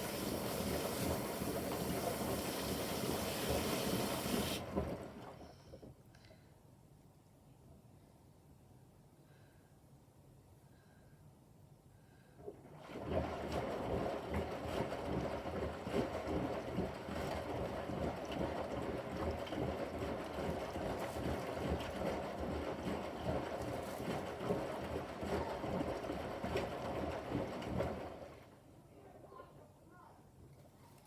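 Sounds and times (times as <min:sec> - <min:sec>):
washing machine drum tumbling: 0:00.0 - 0:05.4, 0:12.7 - 0:28.3.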